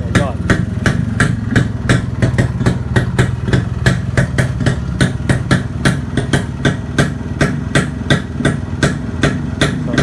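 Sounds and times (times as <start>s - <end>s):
motorcycle engine idling: 0.0s - 10.0s
sharp engine pops: 0.1s - 10.0s.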